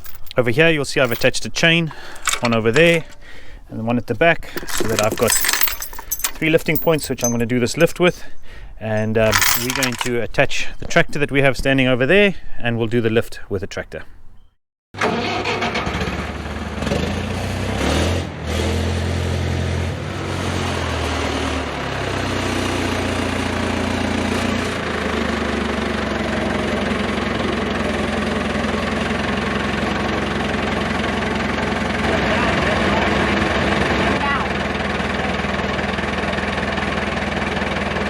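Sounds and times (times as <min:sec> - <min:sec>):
tractor engine running: 0:00.0 - 0:03.7, 0:04.4 - 0:08.3, 0:19.1 - 0:38.0.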